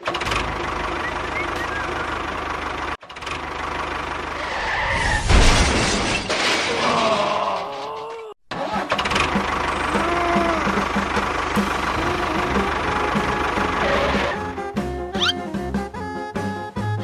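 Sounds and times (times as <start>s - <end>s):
small engine running: 0.0s - 4.4s, 8.9s - 14.6s.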